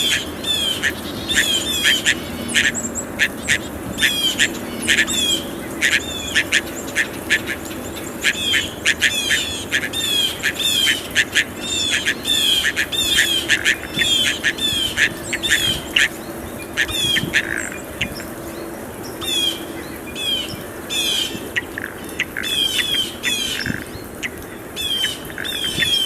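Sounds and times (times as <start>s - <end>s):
blue jays squawking: 0.0s - 18.5s.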